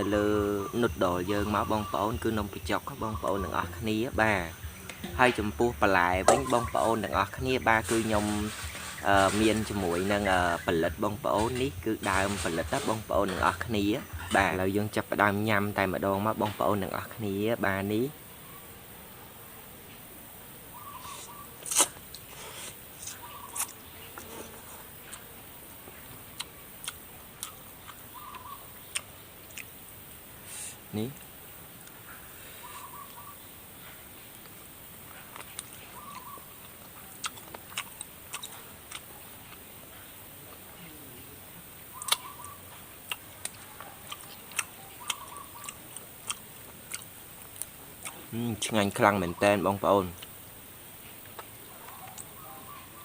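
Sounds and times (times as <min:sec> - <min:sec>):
chewing crunchy bones: 0:26.3 - 0:29.7, 0:35.1 - 0:40.6, 0:42.0 - 0:48.5, 0:51.2 - 0:52.7
person eating wet smacks: 0:51.2 - 0:52.3.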